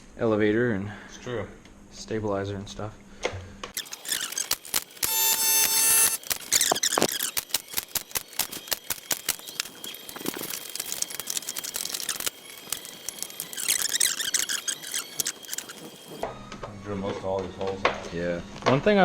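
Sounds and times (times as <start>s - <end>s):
short high squeaks: 3.8s - 16.2s.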